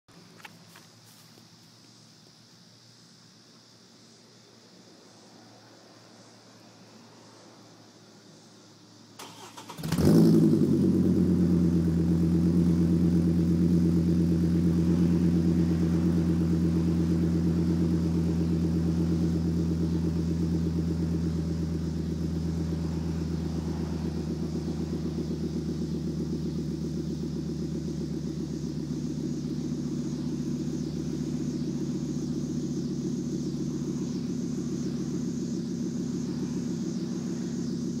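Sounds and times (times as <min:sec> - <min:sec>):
engine starting and idling: 0:09.2 - 0:32.5.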